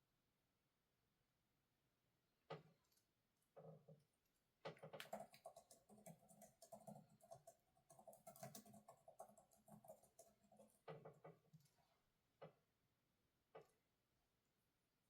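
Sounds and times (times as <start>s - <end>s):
typing on a computer keyboard: 4.6s - 11.6s.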